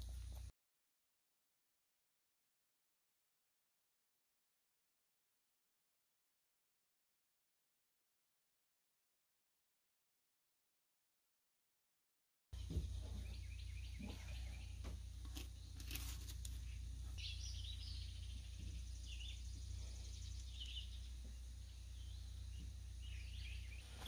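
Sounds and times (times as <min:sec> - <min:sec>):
steady low hum: 0:00.0 - 0:00.5, 0:12.6 - 0:24.0
birds chirping: 0:12.6 - 0:24.0.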